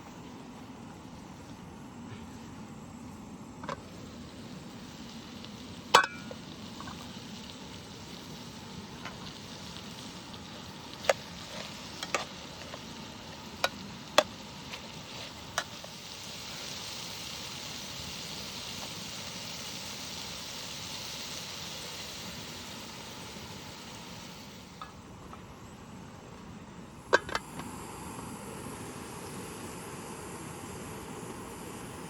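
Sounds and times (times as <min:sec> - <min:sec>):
steady hiss: 0:00.0 - 0:32.0
metal utensil clinking on pan: 0:06.0 - 0:06.3.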